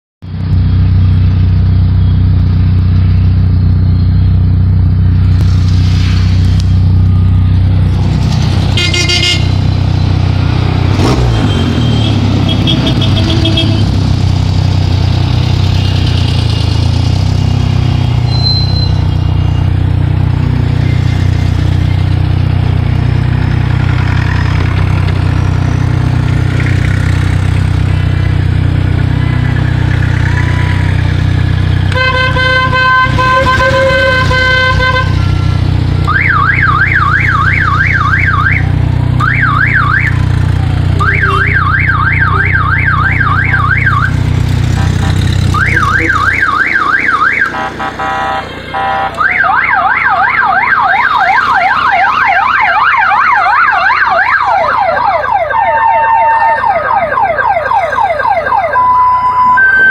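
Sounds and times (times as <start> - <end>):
car engine running: 0.2 - 52.9
car horns tooting: 8.7 - 9.8, 11.0 - 14.0, 29.1 - 38.6, 40.9 - 49.6.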